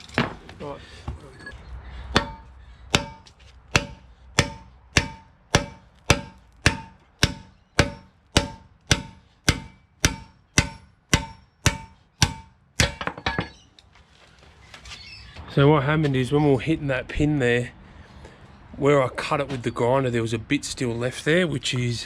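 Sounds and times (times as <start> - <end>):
hammer blows on steel pin: 2.2 - 13.0.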